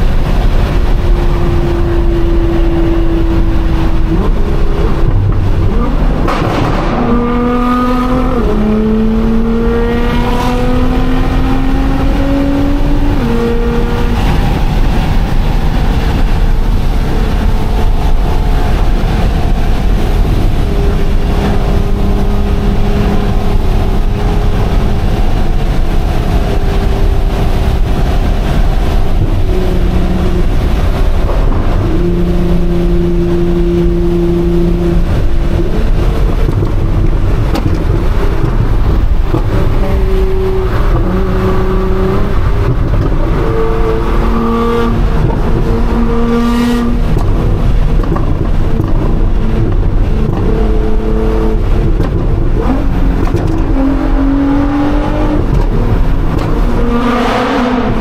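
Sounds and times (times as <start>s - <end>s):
car engine accelerating: 0.0s - 58.0s
road rumble: 0.0s - 58.0s.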